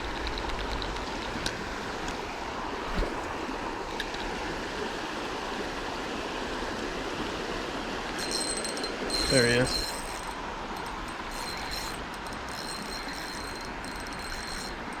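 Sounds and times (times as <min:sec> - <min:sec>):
faint clicks: 0:00.0 - 0:02.2
creek water running over rocks: 0:00.0 - 0:15.0.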